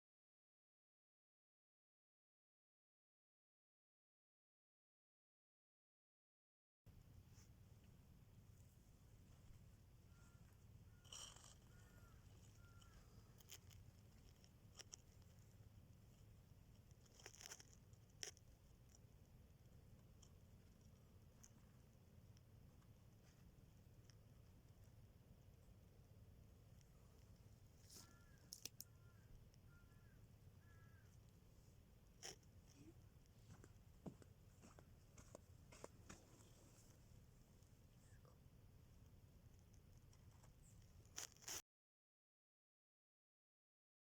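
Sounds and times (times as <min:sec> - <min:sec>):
low steady hum: 0:06.9 - 0:41.2
small clicks and rustles: 0:08.6 - 0:25.8, 0:26.5 - 0:31.4, 0:32.1 - 0:38.2, 0:39.4 - 0:41.6.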